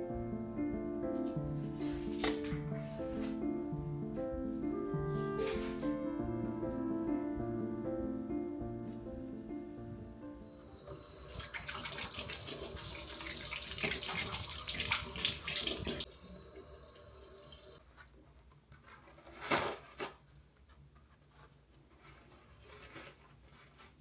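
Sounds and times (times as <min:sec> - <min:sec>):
water running from sink tap: 0:10.7 - 0:17.8.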